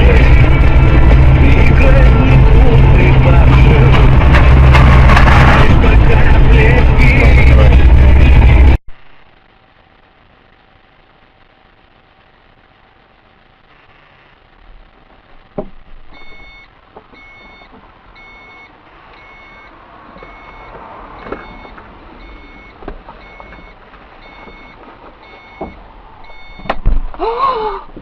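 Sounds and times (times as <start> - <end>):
background traffic: 0.0 - 8.8, 14.3 - 28.0
knocks: 15.6 - 16.4
electronic beeping: 16.1 - 26.7.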